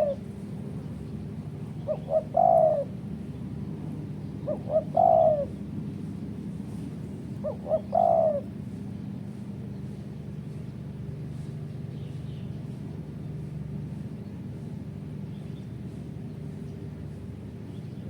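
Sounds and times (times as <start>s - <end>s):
dove cooing: 0.0s - 0.3s, 1.7s - 3.1s, 4.4s - 5.7s, 7.3s - 8.6s
steady low hum: 0.0s - 18.0s.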